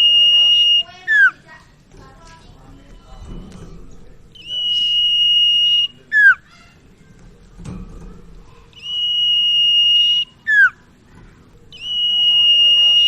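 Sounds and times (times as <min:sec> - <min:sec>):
bird whistling song: 0:00.0 - 0:01.4, 0:04.3 - 0:06.6, 0:08.8 - 0:10.9, 0:11.7 - 0:13.0.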